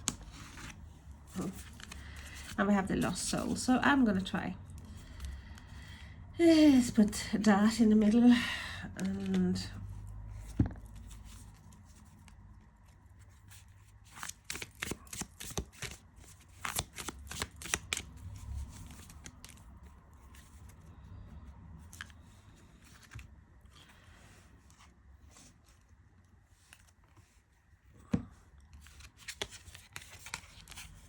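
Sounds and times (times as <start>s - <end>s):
cards rustling and tapping: 0.0s - 3.3s, 9.0s - 20.8s, 28.0s - 31.0s
cards shuffling clicks: 9.0s - 9.7s, 14.1s - 19.7s.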